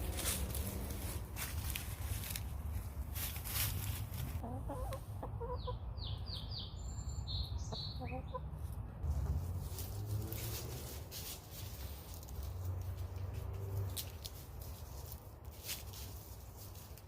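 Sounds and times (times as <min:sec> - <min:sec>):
hens clucking: 0:04.1 - 0:06.4, 0:07.7 - 0:12.4.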